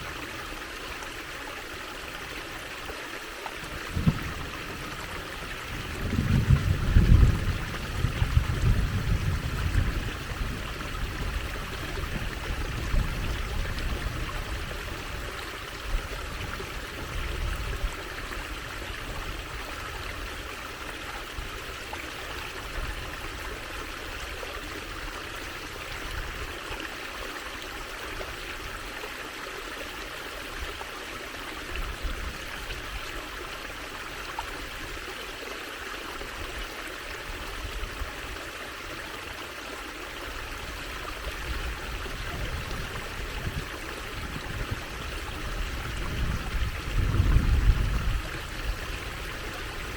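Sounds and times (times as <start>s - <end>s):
water trickling: 0.0s - 49.9s.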